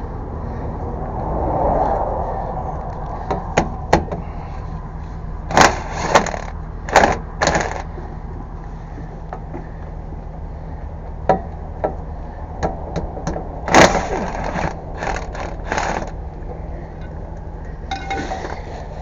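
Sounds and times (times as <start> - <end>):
steady low hum: 0.0 - 19.0
metal tools clattering: 17.9 - 18.8.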